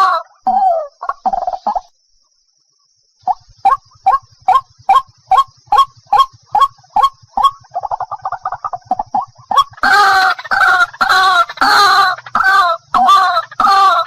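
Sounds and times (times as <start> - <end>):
waterhen calling: 3.3 - 14.0.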